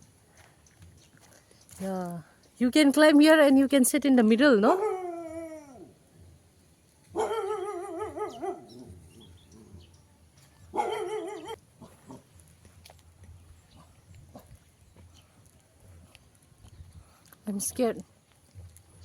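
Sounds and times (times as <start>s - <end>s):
dog howling: 4.7s - 5.9s, 7.2s - 9.1s, 10.8s - 11.6s.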